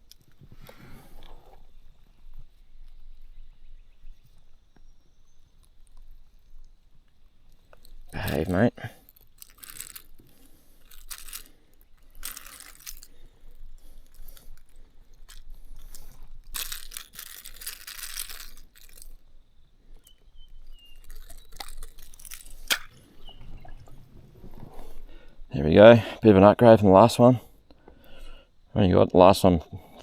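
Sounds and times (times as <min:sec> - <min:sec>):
rattling and scraping: 0:12.2 - 0:13.1, 0:15.3 - 0:19.1.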